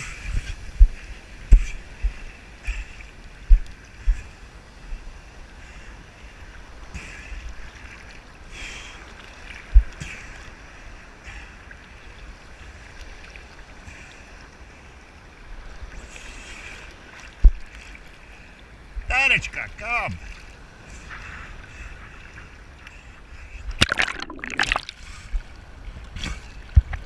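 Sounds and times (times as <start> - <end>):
wind on microphone: 0.0 - 5.3, 20.1 - 27.0
ocean waves splashing: 7.6 - 26.9.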